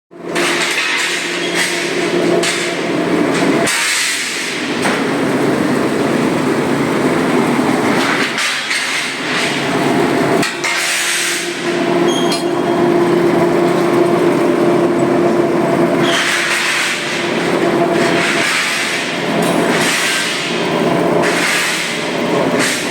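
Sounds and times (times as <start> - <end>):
heavy industrial machinery running: 0.1 - 22.9
sharp metallic clanks: 12.1 - 12.9.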